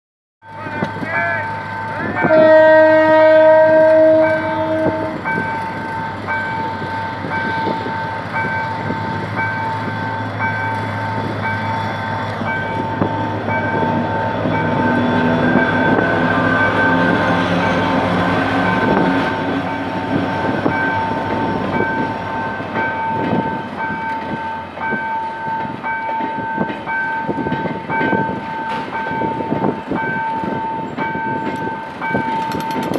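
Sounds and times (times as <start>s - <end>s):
diesel locomotive engine running: 0.4s - 32.9s
level-crossing warning bell ringing: 0.4s - 32.9s
locomotive horn: 2.0s - 5.6s
wheels clicking over rail joints: 22.7s - 32.9s.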